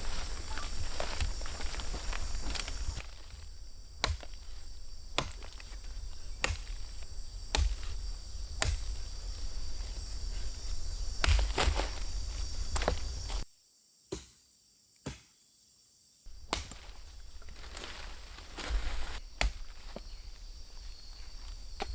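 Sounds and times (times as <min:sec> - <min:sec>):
blade chopping or digging: 0:00.0 - 0:13.4, 0:16.3 - 0:20.0
footsteps and rustling: 0:00.0 - 0:13.5, 0:16.3 - 0:21.9
insects chorus: 0:00.0 - 0:14.3, 0:15.4 - 0:21.9.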